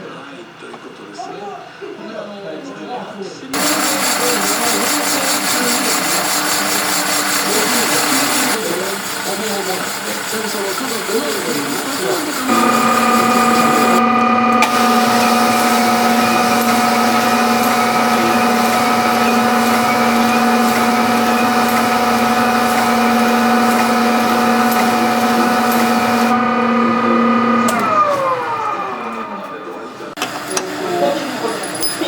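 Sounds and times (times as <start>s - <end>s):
machine tool motor running: 3.6s - 32.0s.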